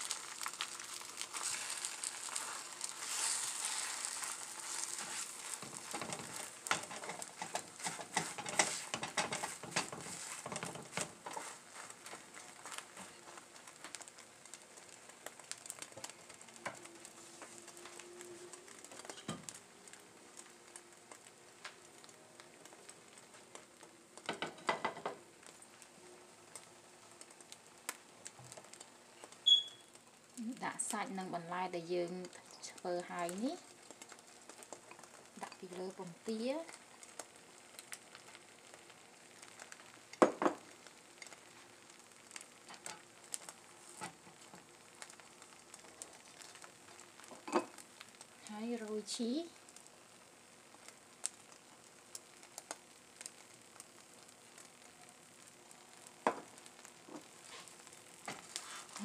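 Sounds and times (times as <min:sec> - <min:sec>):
egg sizzling in a frying pan: 0:00.0 - 0:59.0
spatula pressing and turning: 0:02.3 - 0:11.9.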